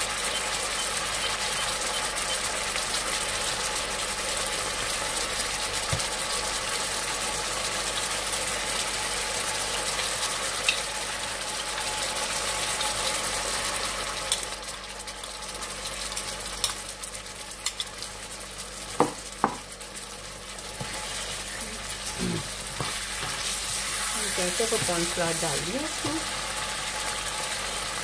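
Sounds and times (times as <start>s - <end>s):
chicken sizzling in a wok: 0.0s - 28.0s
spatula scraping and knocking pan: 20.8s - 21.4s, 22.4s - 26.3s.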